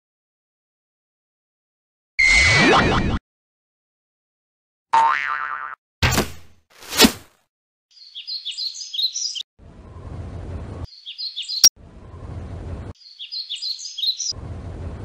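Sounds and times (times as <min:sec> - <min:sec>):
birds chirping: 0:07.9 - 0:10.1, 0:10.9 - 0:14.4.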